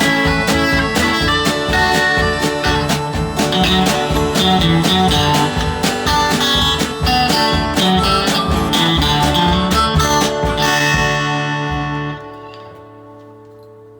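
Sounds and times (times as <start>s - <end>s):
country band playing: 0.0s - 13.5s
acoustic guitar picking: 0.0s - 13.9s.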